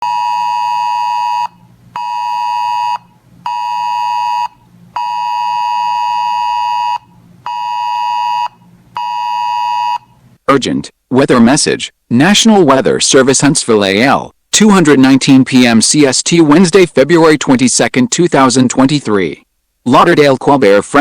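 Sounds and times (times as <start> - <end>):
buzzy alarm beeps: 0.0 - 10.1.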